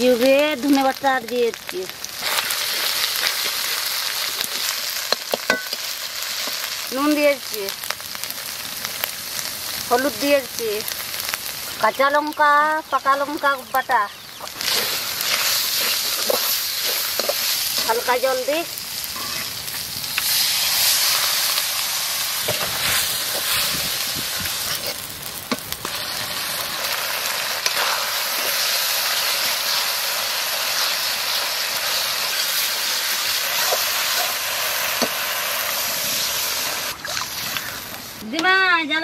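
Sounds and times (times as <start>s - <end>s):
spice paste sizzling in oil: 0.0s - 39.0s
spatula scraping pan: 14.5s - 18.1s.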